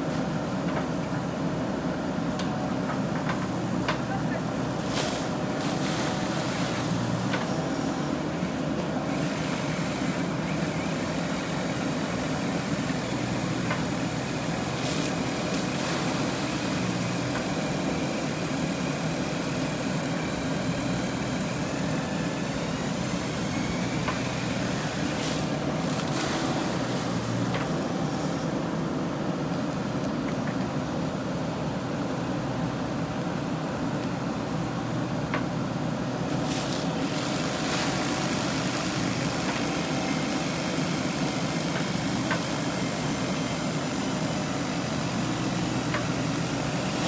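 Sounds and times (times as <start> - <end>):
diesel engine running: 30.8 - 47.0.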